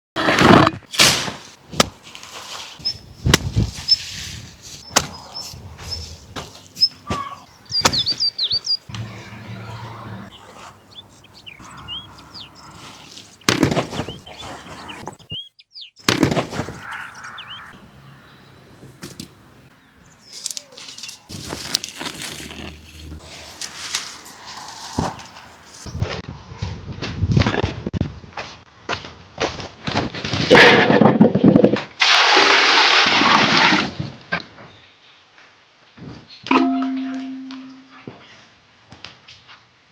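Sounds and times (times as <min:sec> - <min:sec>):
small birds chirping: 0:02.3 - 0:26.0
sharp knocks and thuds: 0:04.9 - 0:09.1, 0:13.4 - 0:15.2, 0:16.0 - 0:17.0.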